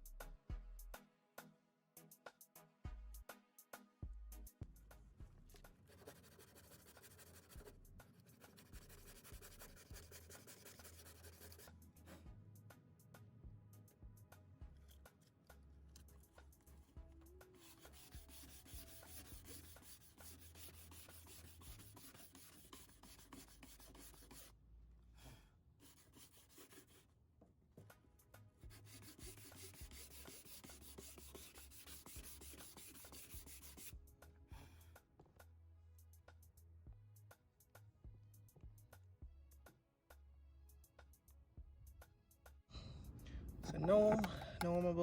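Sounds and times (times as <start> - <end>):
sandpaper rubbing on metal: 6.0 - 11.7, 17.6 - 24.5, 28.7 - 33.9.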